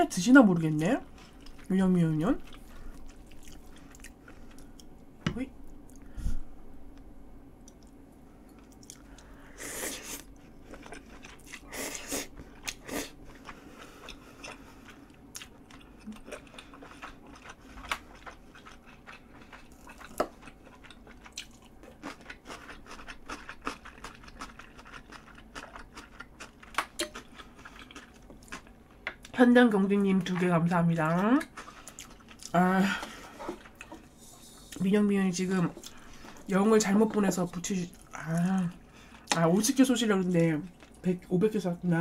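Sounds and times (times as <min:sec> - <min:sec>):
mouth chewing food: 0:10.0 - 0:29.4.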